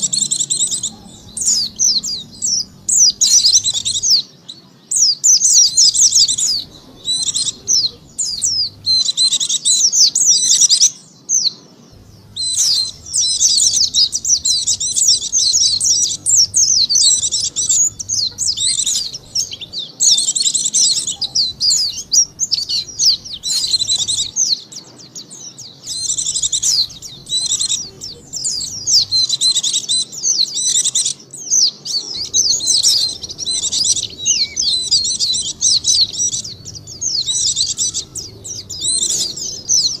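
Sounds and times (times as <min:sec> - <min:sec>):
bird twittering song: 0:00.0 - 0:40.0.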